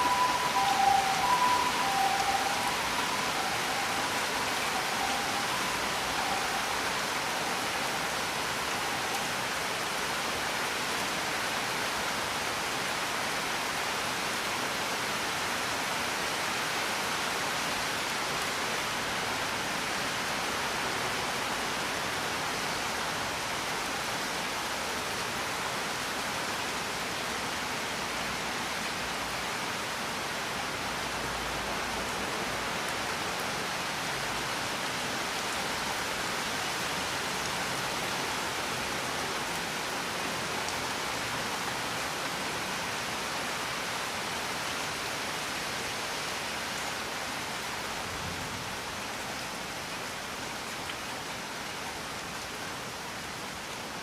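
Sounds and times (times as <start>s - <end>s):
faint held tones: 0.0s - 6.6s
heavy rain: 0.0s - 54.0s.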